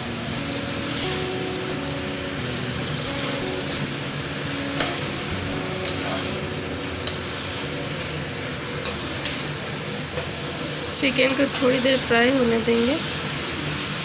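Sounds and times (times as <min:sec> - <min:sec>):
chicken sizzling in hot oil: 0:00.0 - 0:14.0.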